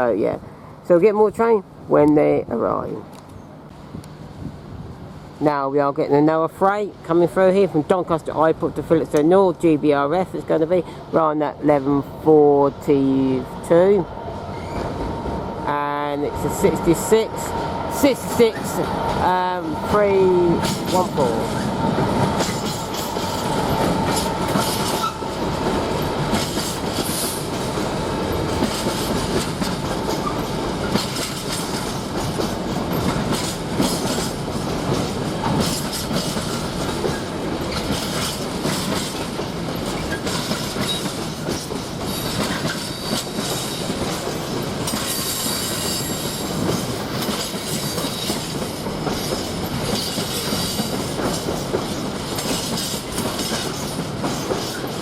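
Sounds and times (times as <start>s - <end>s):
high wheel squeal: 14.5s - 15.1s
train wheels clicking over rail joints: 16.6s - 55.0s.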